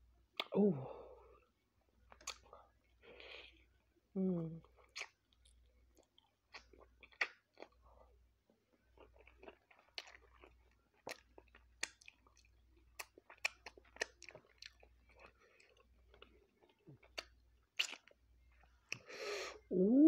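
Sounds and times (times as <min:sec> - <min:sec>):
person chewing: 0:02.1 - 0:03.6, 0:04.6 - 0:08.1, 0:08.9 - 0:19.1.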